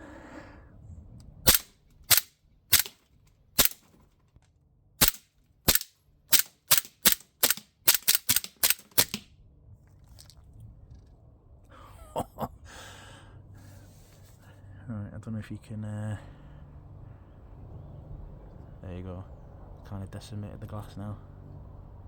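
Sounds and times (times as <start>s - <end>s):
air pistol shots: 1.5s - 3.0s, 3.6s - 4.0s, 5.0s - 9.2s
metal slide cycling: 1.5s - 3.0s, 3.6s - 3.9s, 5.0s - 9.2s.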